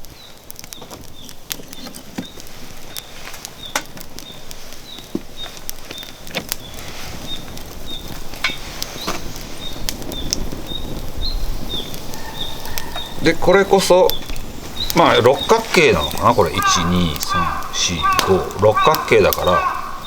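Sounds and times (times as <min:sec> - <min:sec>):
wood fire crackling: 0:00.0 - 0:20.0
faint high chirp: 0:11.8 - 0:13.3.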